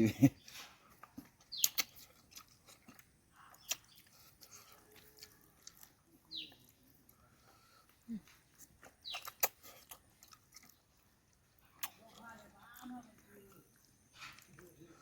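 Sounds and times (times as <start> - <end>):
soft chewing: 0.3 - 15.0
mouth clicks: 1.4 - 6.8, 8.2 - 10.8.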